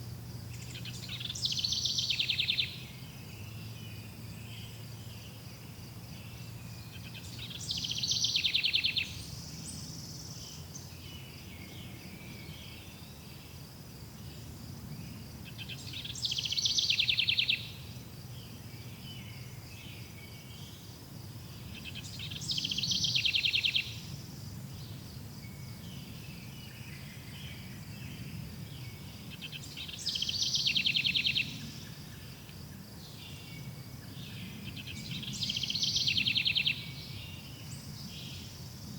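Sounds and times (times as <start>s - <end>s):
songbird trilling: 0.5s - 2.9s, 6.8s - 9.9s, 15.5s - 17.8s, 21.8s - 24.0s, 29.3s - 31.7s, 34.7s - 37.2s.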